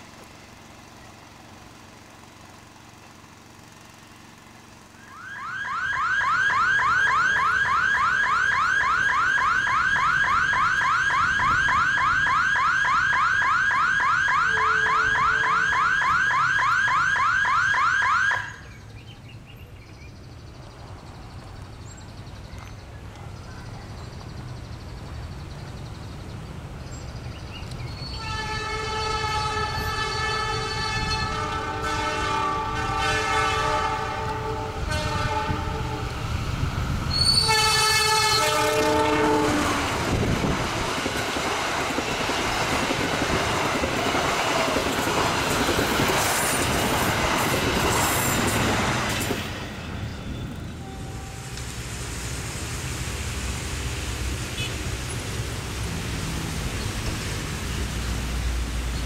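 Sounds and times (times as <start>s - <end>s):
train horn blast: 14.5s - 15.7s, 28.1s - 36.2s, 37.1s - 40.1s, 50.8s - 51.6s
train rumble: 18.6s - 59.0s
train wheels running: 23.8s - 59.0s.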